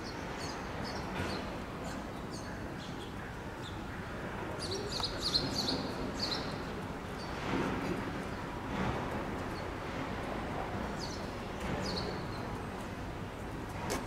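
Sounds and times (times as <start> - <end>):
small birds chirping: 0.0 - 7.4, 10.9 - 12.7
steady background hum: 0.0 - 14.0.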